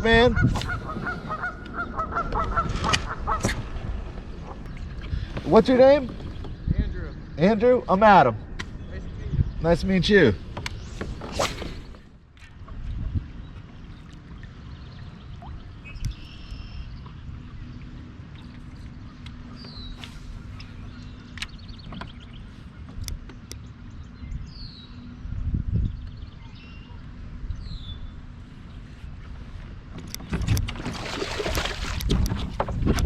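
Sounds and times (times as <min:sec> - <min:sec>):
wind and water noise: 0:00.0 - 0:33.0
water splashing around kayak: 0:29.4 - 0:33.0.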